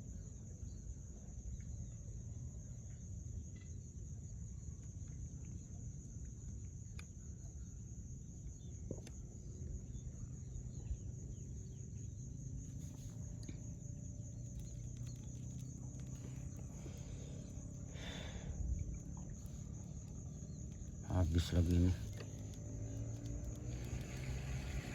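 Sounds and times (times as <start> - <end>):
low steady rumble: 0.7 - 24.9
faint clicks: 12.6 - 24.9.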